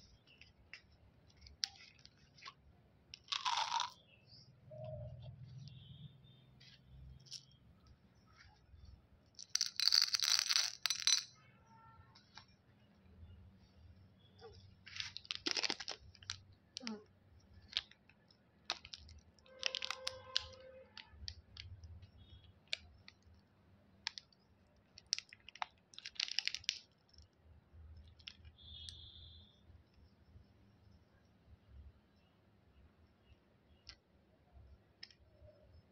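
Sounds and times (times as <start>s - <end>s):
plastic wrapper crinkling: 3.2s - 3.9s, 14.4s - 16.9s, 18.7s - 21.7s, 25.0s - 26.9s.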